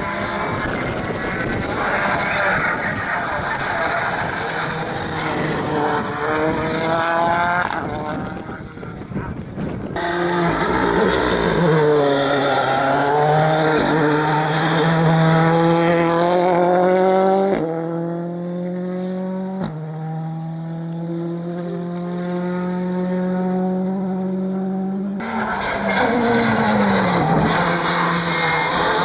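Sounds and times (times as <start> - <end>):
rally cars accelerating at full throttle: 0.0 - 29.0
tyre squeal: 0.7 - 5.7, 25.2 - 29.0.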